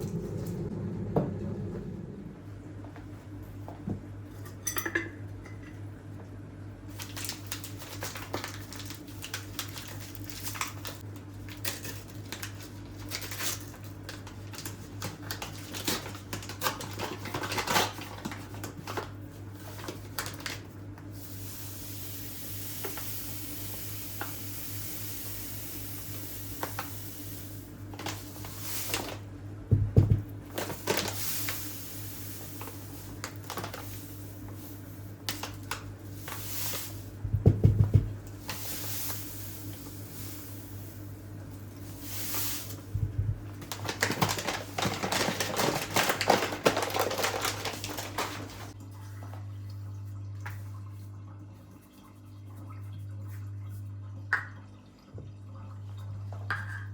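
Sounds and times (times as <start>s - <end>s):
low steady hum: 0.0s - 14.7s
dishes and cutlery clinking: 4.4s - 5.8s
steady hiss: 21.1s - 29.2s, 30.7s - 37.2s, 38.3s - 43.0s.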